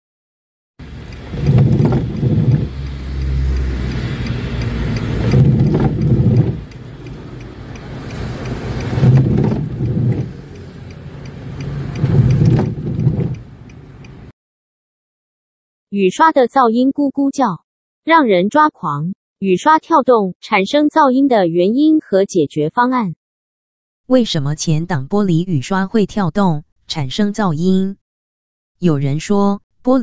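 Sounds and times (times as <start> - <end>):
wiper blades juddering on glass: 1.0 - 13.5.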